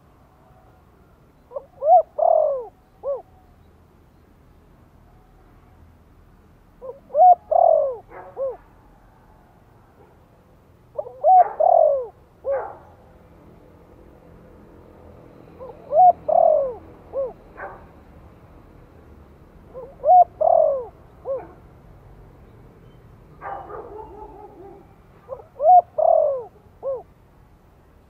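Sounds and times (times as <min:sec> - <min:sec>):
dove cooing: 0:01.5 - 0:03.4, 0:06.8 - 0:08.9, 0:10.9 - 0:12.9, 0:15.4 - 0:17.9, 0:19.6 - 0:21.6, 0:23.4 - 0:27.2.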